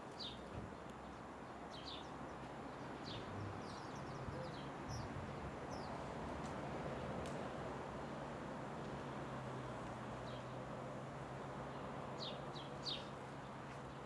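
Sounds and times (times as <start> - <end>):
small birds chirping: 0.1 - 6.1, 11.7 - 14.0.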